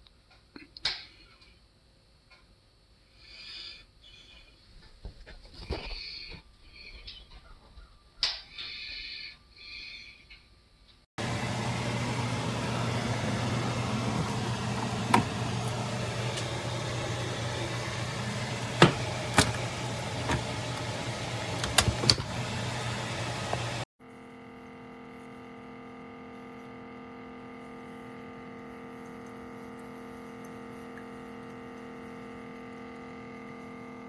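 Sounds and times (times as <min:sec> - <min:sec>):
coffee maker pump humming: 0:11.2 - 0:23.9, 0:27.2 - 0:34.0.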